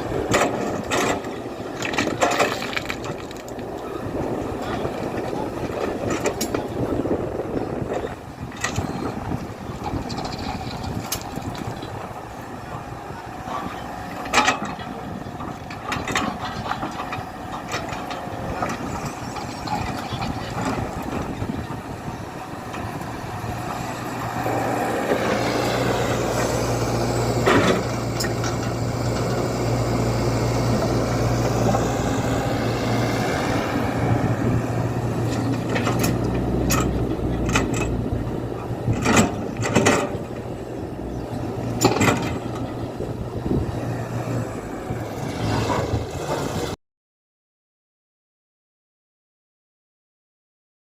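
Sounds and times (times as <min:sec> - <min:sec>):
excavator diesel engine: 0:00.0 - 0:46.8
knocks and clanks: 0:38.9 - 0:40.4, 0:41.7 - 0:42.7.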